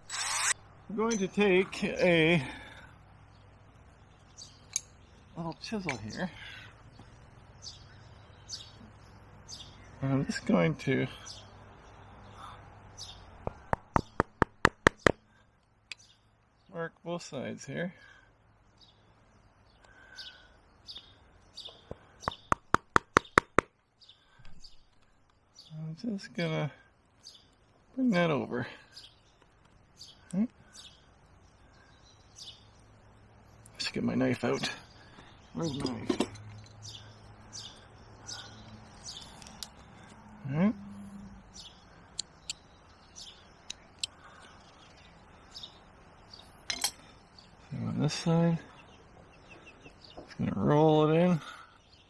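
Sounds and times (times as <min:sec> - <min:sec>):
high bird chirps: 0:00.0 - 0:01.4
small birds chirping: 0:00.0 - 0:52.0
chisel tapping into wood: 0:13.4 - 0:15.2, 0:22.3 - 0:23.7.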